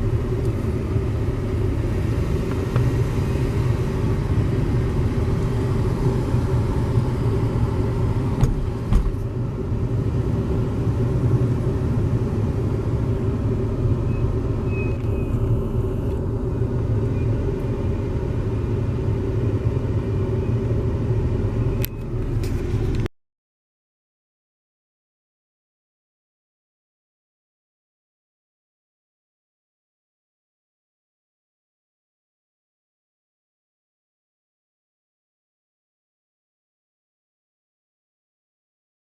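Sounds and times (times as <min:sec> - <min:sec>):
car rumbling while moving: 0:00.0 - 0:23.1.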